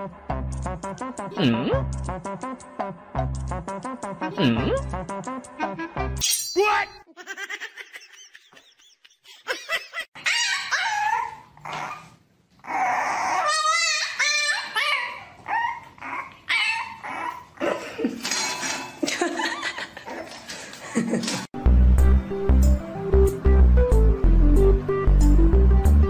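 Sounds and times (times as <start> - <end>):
puppy whining and yipping: 10.2 - 17.6.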